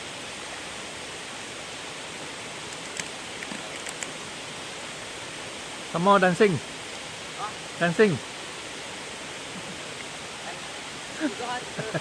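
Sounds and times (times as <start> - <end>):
waterfall rushing: 0.0 - 12.0
faint clicks: 2.7 - 4.2.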